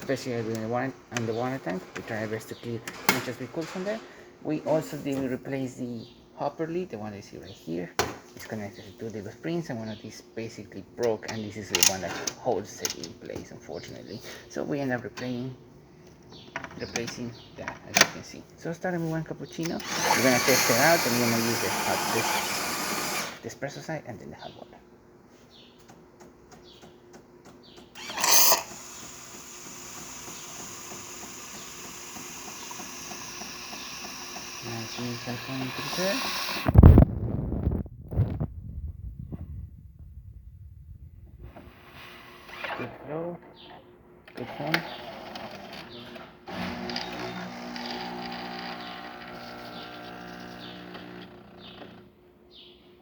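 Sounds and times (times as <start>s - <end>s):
espresso machine running: 19.8s - 23.4s, 28.0s - 36.7s, 46.5s - 51.6s.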